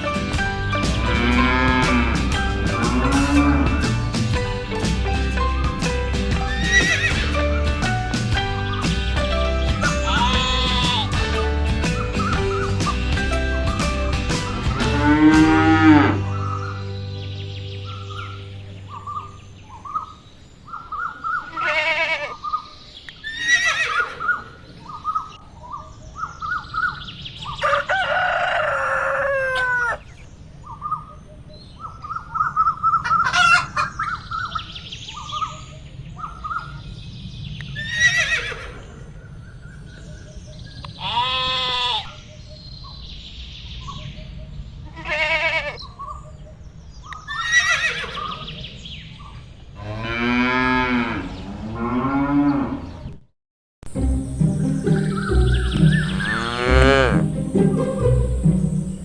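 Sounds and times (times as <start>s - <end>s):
chickens clucking: 0.0s - 17.3s, 27.5s - 30.2s, 32.5s - 34.6s
rooster crowing: 27.6s - 30.1s.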